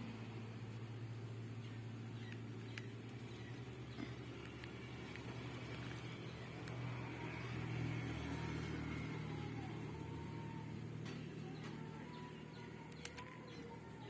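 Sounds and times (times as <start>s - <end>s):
faint low hum: 0.0s - 14.0s
soft clicks: 2.2s - 6.9s, 12.6s - 13.7s.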